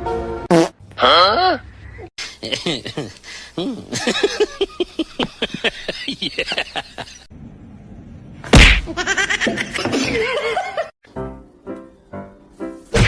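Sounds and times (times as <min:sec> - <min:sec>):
loud smack: 0:08.5 - 0:09.0.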